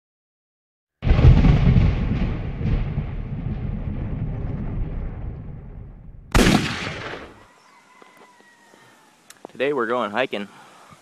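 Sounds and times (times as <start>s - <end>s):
sudden hit: 1.0s - 7.2s
loud rumbling boom: 1.0s - 7.3s.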